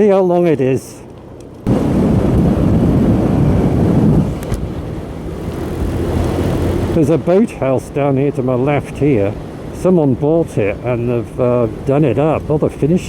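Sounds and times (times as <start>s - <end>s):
wind rush on microphone: 1.6s - 13.0s
motorcycle engine running: 1.7s - 12.3s.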